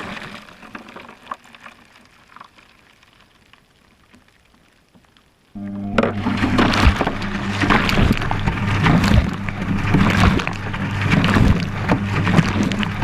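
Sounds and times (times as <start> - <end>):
washing machine motor hum: 5.6 - 13.0.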